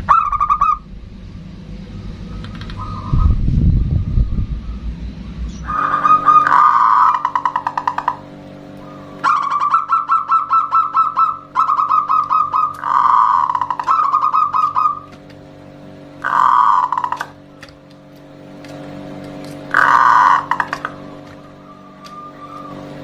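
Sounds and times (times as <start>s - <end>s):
low rumble: 0.0s - 9.2s
dove cooing: 5.6s - 15.2s, 16.2s - 17.5s, 19.7s - 23.0s.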